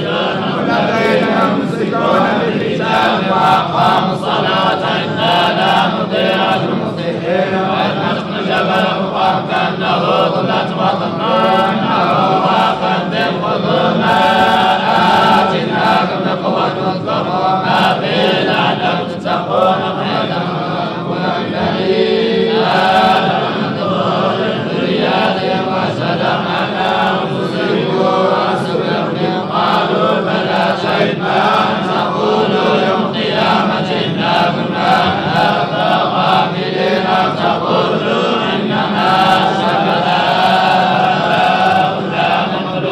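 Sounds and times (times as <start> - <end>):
man chanting recitation: 0.0 - 42.9.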